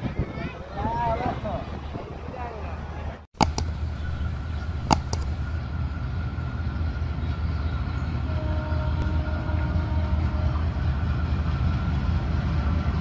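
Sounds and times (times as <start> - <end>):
faint steady tones: 3.4 - 5.6
sharp clicks: 3.4 - 5.6.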